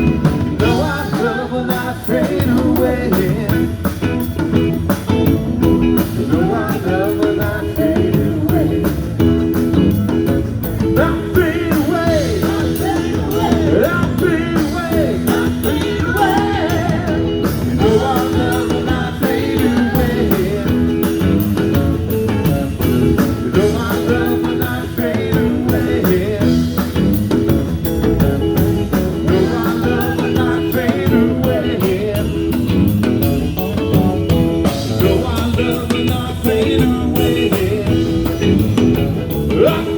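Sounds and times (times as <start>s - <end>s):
live blues-rock band: 0.0s - 39.9s.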